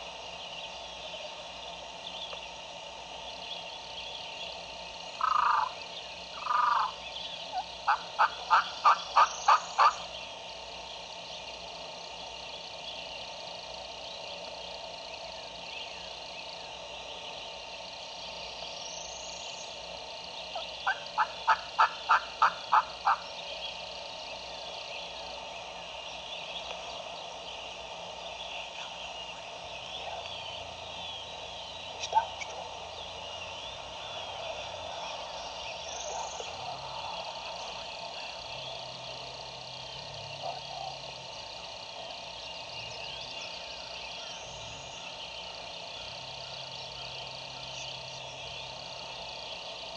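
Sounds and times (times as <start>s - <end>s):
frog chorus: 0.0s - 49.9s
turkey yelping: 5.2s - 5.7s, 7.9s - 10.0s, 20.8s - 23.2s.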